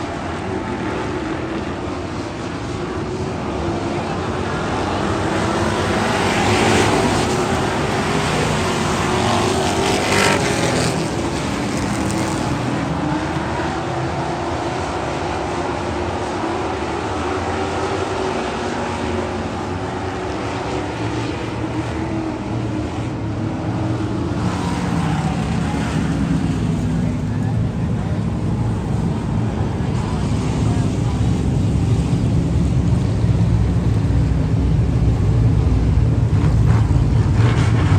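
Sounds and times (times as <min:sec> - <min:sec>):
race car engine running: 0:00.2 - 0:37.9.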